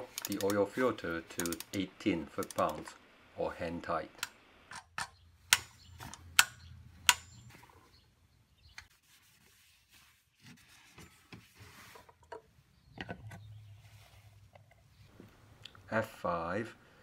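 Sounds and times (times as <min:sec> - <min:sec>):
torque wrench clicking: 0:00.0 - 0:00.7, 0:01.3 - 0:02.9, 0:05.5 - 0:07.4
tools knocking and rubbing: 0:04.7 - 0:07.9.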